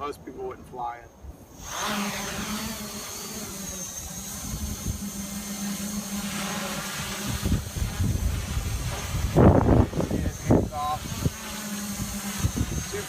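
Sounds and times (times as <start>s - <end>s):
drone motors whining: 1.4s - 13.0s
wind buffeting microphone: 4.0s - 13.0s.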